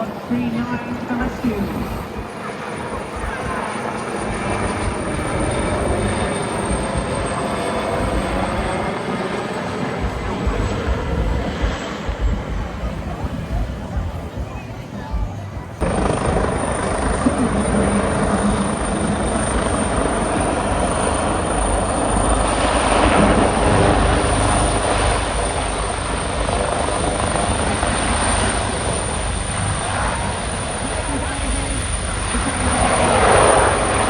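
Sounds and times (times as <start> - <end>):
helicopter flying past: 0.0 - 34.0.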